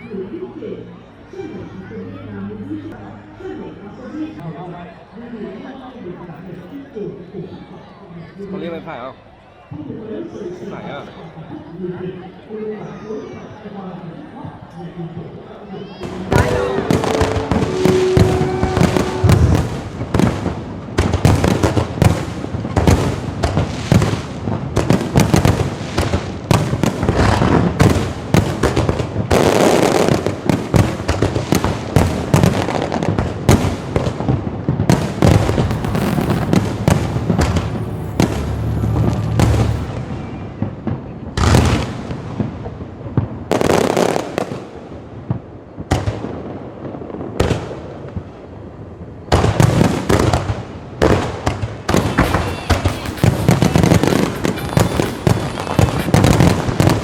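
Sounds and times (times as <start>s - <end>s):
fireworks cracks and booms: 16.0s - 48.4s, 49.3s - 57.0s.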